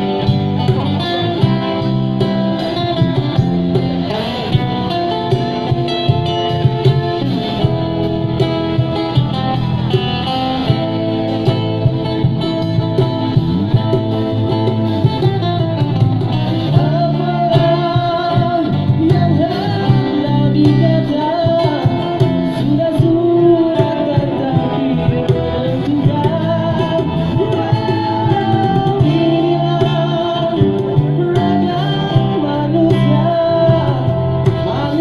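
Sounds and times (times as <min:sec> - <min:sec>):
guitar playing: 0:00.0 - 0:35.0
man singing: 0:16.5 - 0:35.0.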